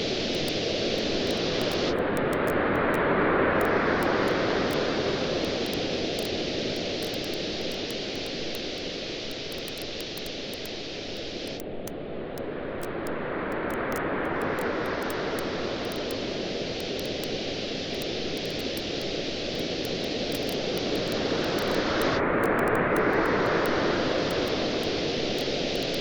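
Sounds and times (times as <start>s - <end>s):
waves washing onto beach: 0.0s - 11.6s, 12.3s - 26.0s
bonfire crackling: 3.7s - 11.8s, 13.6s - 26.0s.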